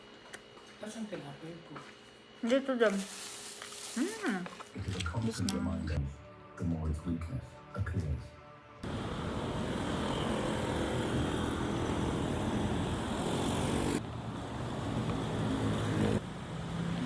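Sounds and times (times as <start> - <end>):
vehicle ride noise with low hum: 8.8 - 17.0.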